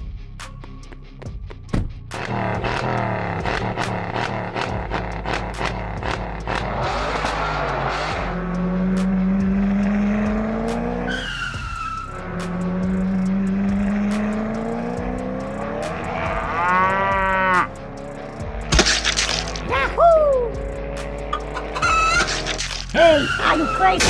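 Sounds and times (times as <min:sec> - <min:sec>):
fast rising whine: 0:02.1 - 0:19.8, 0:20.5 - 0:24.0
racing car engine revving: 0:02.1 - 0:24.0
tire screech: 0:02.1 - 0:24.0
sharp clicks: 0:20.9 - 0:23.0.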